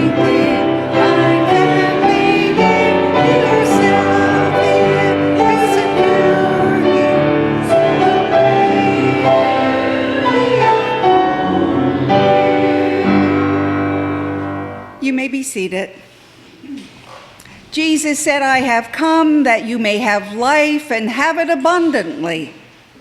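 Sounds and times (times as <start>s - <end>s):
congregation singing a hymn: 0.0s - 15.0s
instrumental accompaniment: 0.0s - 15.0s.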